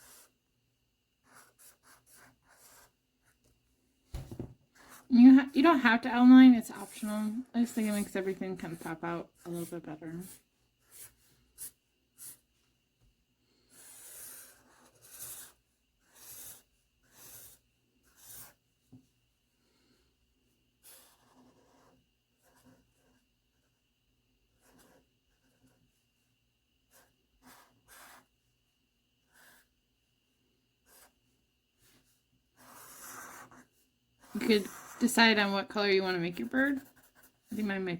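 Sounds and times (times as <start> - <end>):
pen scratching on paper: 0.0 - 0.3, 1.2 - 3.4, 4.8 - 6.0, 6.7 - 12.4, 13.7 - 18.6, 20.8 - 23.2, 24.6 - 25.8, 26.9 - 28.3, 29.3 - 29.7, 30.9 - 31.2, 32.6 - 35.4, 36.4 - 37.7.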